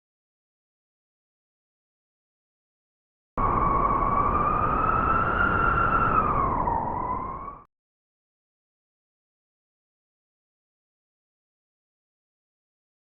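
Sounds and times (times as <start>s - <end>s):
howling blizzard wind: 3.4s - 7.7s.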